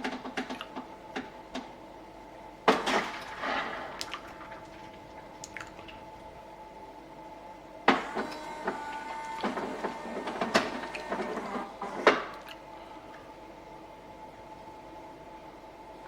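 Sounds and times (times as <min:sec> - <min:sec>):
steady low hum: 0:00.0 - 0:16.0
coffee machine motor whirring: 0:07.9 - 0:12.2.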